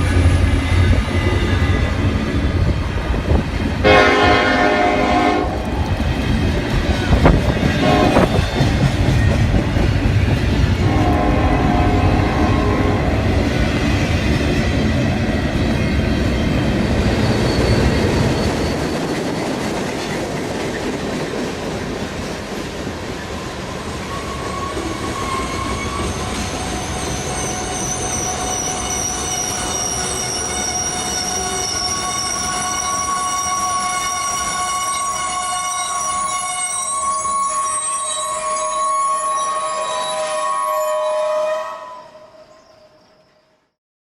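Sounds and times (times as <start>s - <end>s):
train rolling along rails: 0.0s - 43.5s
high-pitched wheel squeal: 17.0s - 19.4s, 24.0s - 42.8s.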